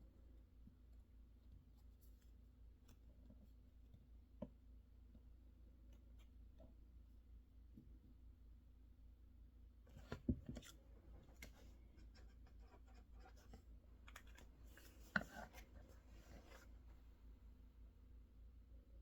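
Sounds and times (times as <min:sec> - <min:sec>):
light clicks and scratching: 0:09.9 - 0:17.0.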